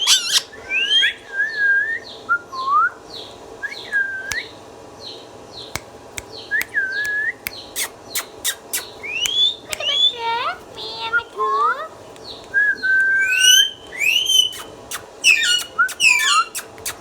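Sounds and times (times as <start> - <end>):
parrot chirps: 0.0 - 1.2, 6.4 - 11.2, 12.7 - 17.0
parrot whistling: 12.6 - 17.0
sharp clicks: 13.9 - 17.0.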